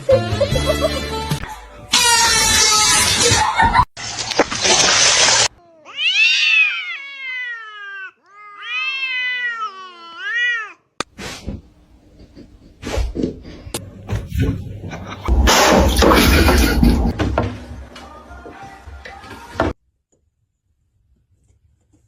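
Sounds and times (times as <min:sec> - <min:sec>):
cat yowling: 0:05.6 - 0:10.8.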